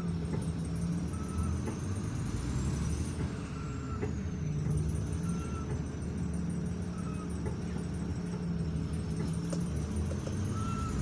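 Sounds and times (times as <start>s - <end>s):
train rumble inside carriage: 0.0s - 11.0s.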